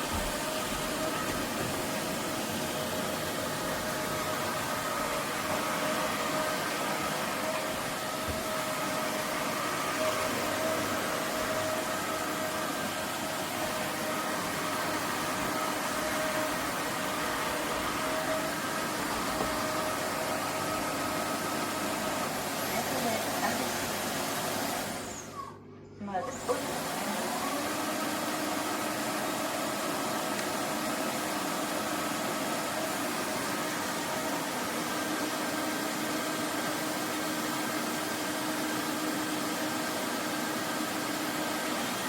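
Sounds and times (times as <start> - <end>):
vacuum mop suction rushing: 0.0 - 25.6, 26.3 - 42.0.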